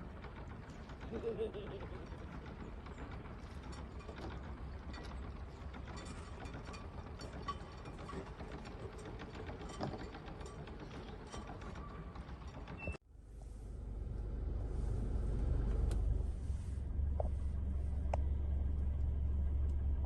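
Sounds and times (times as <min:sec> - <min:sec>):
low rumble: 0:13.1 - 0:20.0.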